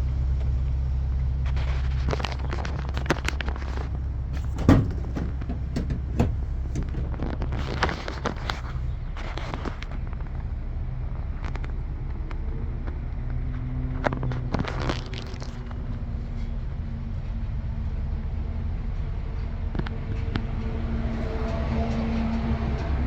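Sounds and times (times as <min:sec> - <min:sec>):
vehicle engine idling: 0:00.1 - 0:17.3
clicks and knocks: 0:02.2 - 0:08.6.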